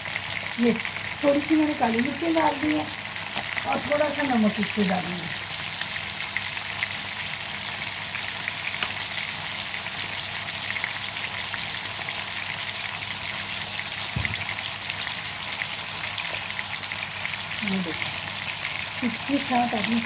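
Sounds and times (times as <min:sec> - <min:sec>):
tomato frying in oil: 0:00.0 - 0:20.0
low thump: 0:14.1 - 0:14.5.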